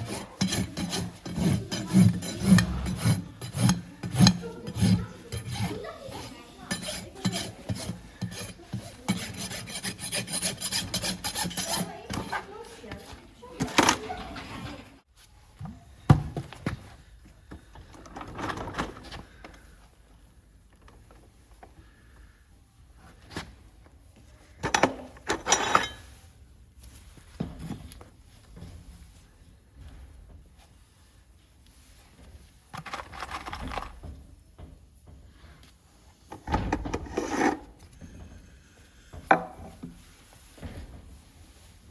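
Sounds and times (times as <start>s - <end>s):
rasp filing hoof: 0.0s - 12.6s, 36.4s - 38.4s.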